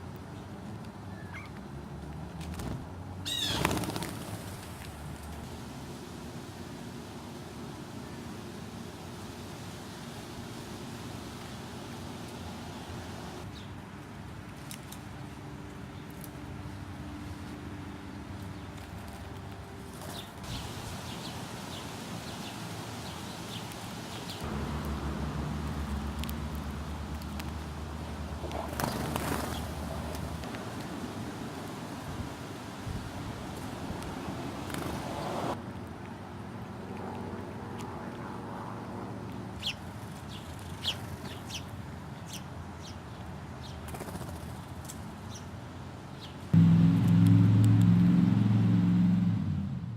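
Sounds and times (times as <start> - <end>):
birds chirping: 3.3 - 4.0
small birds chirping: 3.3 - 4.0, 39.6 - 44.7
steady low rumble: 24.4 - 28.8.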